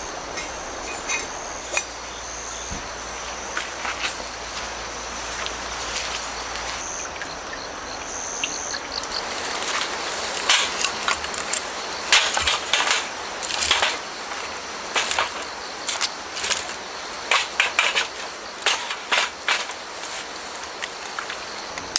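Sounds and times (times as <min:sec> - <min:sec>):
grass insects trilling: 0:00.0 - 0:21.9
crunching and rustling clicks: 0:09.1 - 0:21.9.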